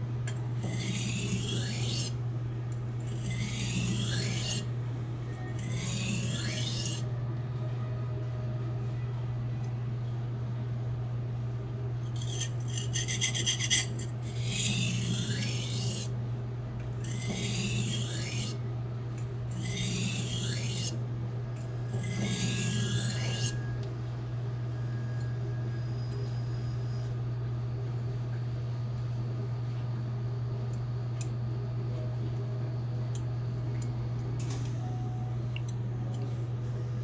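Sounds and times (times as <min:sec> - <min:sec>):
steady low hum: 0:00.0 - 0:37.0
knife scraping on whetstone: 0:00.6 - 0:02.2, 0:03.1 - 0:04.7, 0:05.5 - 0:07.1, 0:12.1 - 0:16.1, 0:17.0 - 0:18.6, 0:19.5 - 0:21.0, 0:21.9 - 0:23.6.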